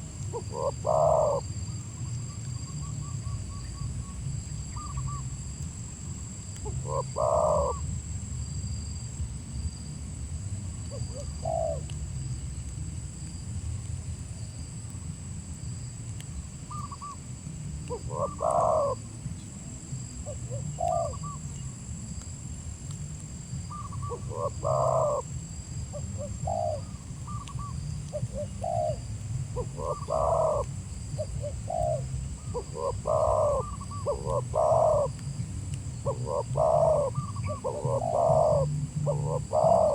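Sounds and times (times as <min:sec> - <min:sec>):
dove cooing: 0:00.0 - 0:01.6, 0:06.6 - 0:07.9, 0:10.9 - 0:11.9, 0:17.8 - 0:19.1, 0:20.2 - 0:21.4, 0:23.7 - 0:25.3, 0:25.9 - 0:35.3, 0:36.0 - 0:39.9.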